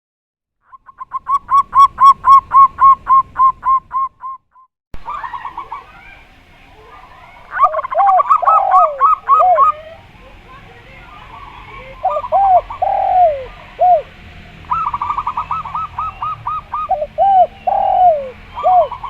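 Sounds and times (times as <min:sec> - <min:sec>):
dove cooing: 0:05.1 - 0:10.4, 0:11.0 - 0:19.0
deep arched dove coos: 0:07.5 - 0:10.0, 0:11.3 - 0:19.0.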